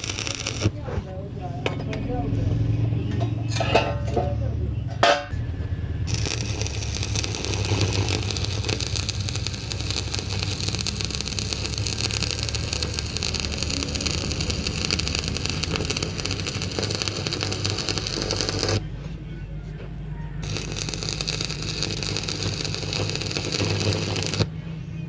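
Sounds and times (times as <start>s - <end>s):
machine humming with crackle: 0.0s - 0.8s, 5.3s - 19.0s, 20.4s - 24.7s.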